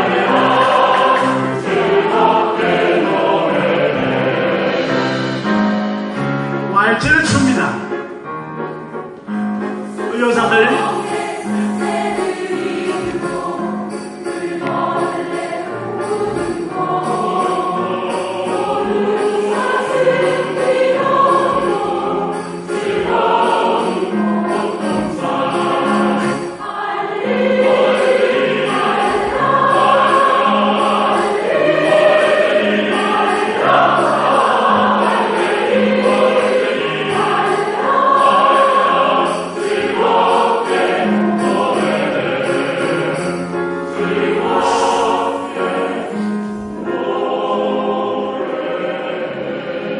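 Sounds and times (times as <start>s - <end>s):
choir singing a waltz: 0.0s - 49.9s.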